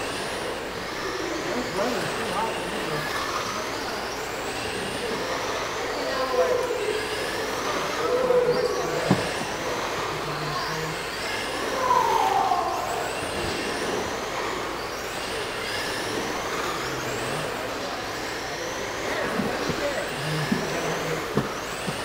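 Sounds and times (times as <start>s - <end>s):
radio-controlled truck motors whining: 0.0s - 22.0s.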